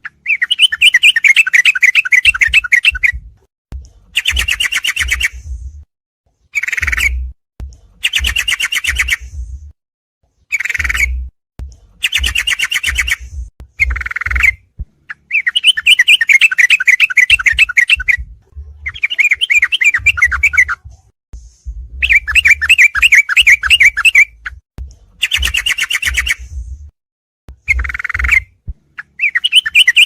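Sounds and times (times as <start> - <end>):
bulbul song rapid repeated notes: 27.6 - 30.0.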